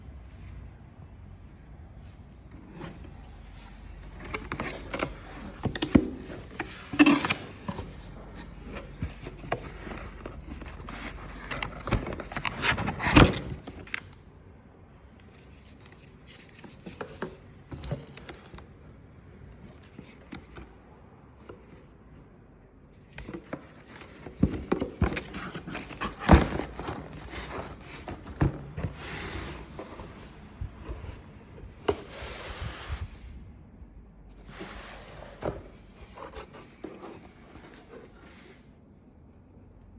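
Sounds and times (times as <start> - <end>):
hard objects scraping: 2.5 - 14.1, 23.2 - 33.3.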